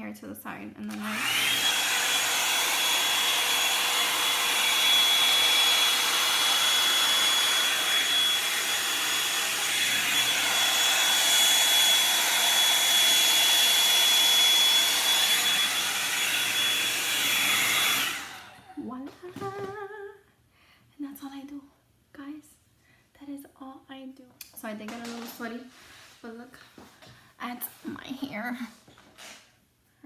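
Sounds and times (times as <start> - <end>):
hair dryer running: 0.8 - 19.6.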